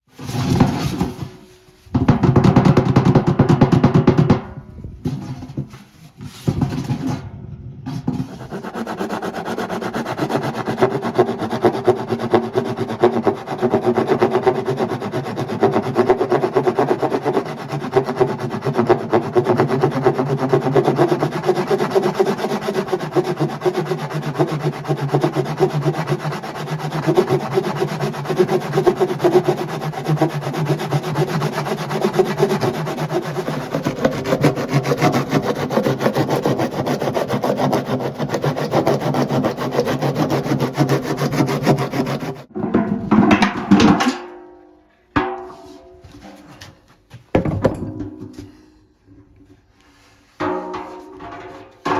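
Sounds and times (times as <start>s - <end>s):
saw cutting through plastic: 8.1s - 42.5s.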